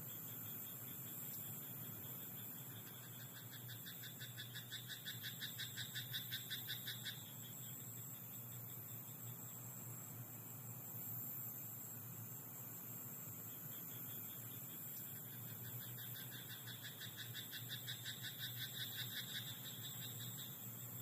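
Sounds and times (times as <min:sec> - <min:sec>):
faint frog calls: 0:00.0 - 0:21.0
steady high hiss: 0:00.0 - 0:21.0
frog croaking in rapid pulses: 0:01.6 - 0:07.7, 0:13.7 - 0:21.0.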